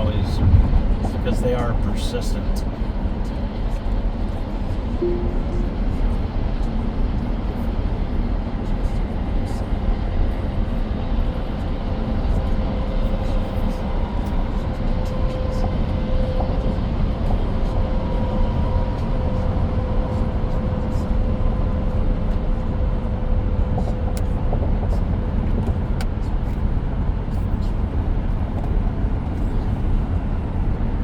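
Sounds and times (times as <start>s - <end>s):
road and tyre noise in car: 0.0s - 31.0s
faint steady hum: 5.0s - 6.8s.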